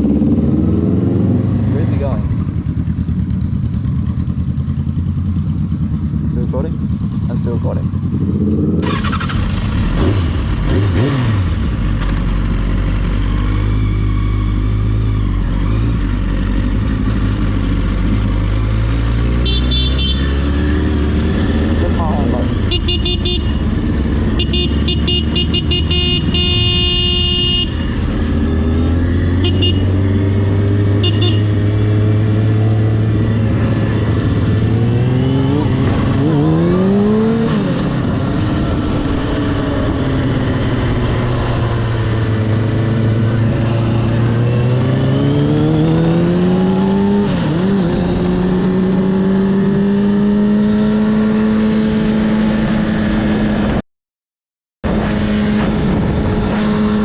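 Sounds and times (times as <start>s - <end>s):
motorcycle engine shifting gears: 0.0s - 53.7s.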